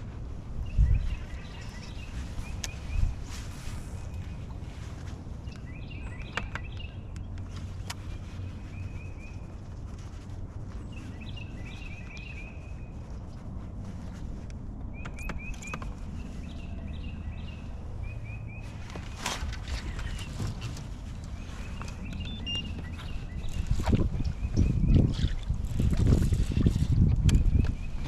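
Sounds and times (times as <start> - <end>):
bird chirping: 0.6 - 3.2, 5.4 - 9.5, 10.8 - 13.2, 14.9 - 25.4.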